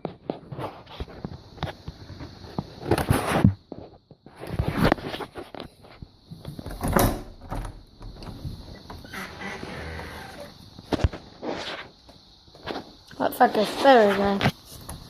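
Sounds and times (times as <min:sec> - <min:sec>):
door rattling and knocking: 0:06.6 - 0:10.5.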